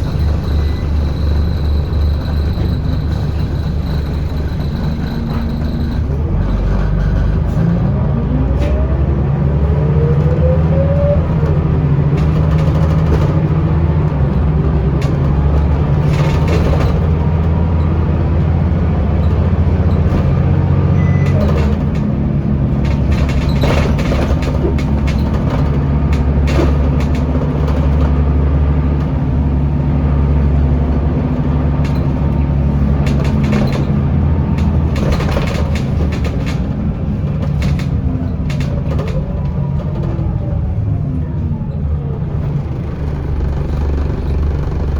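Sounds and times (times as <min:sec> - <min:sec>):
bus engine drone: 0:00.0 - 0:44.9
knocks and rattles: 0:11.2 - 0:40.4, 0:42.4 - 0:44.9.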